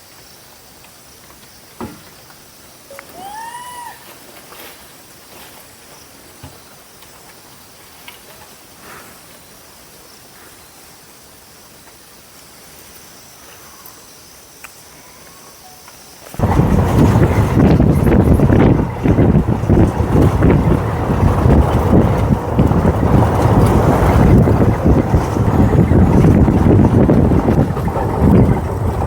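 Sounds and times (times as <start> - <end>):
bird call: 2.9 - 4.3
wind buffeting microphone: 16.4 - 29.0.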